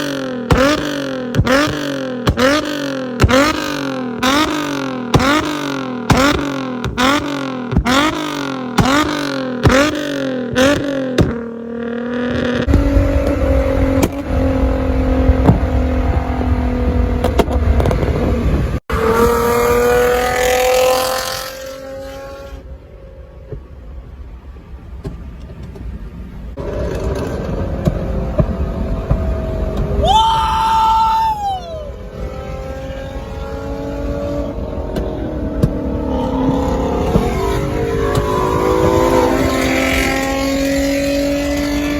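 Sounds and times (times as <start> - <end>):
car engine revving in blips: 0.0 - 22.7, 24.9 - 30.1, 31.9 - 41.9
car engine running and pulling: 24.7 - 30.4, 31.5 - 41.9.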